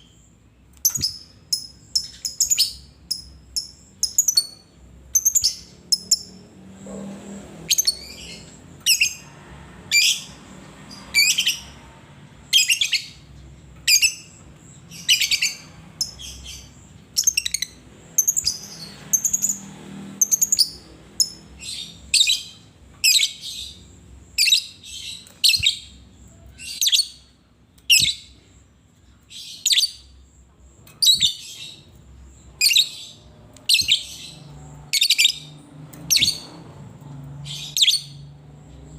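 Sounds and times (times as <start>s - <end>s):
lovebird chirping: 0.0s - 6.5s, 7.7s - 9.3s, 9.9s - 11.8s, 12.4s - 36.6s, 37.3s - 38.3s.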